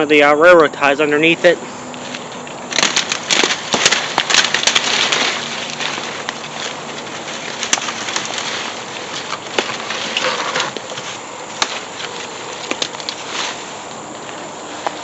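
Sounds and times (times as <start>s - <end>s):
footsteps through dry brush: 0.6s - 15.0s
twigs snapping: 1.8s - 15.0s.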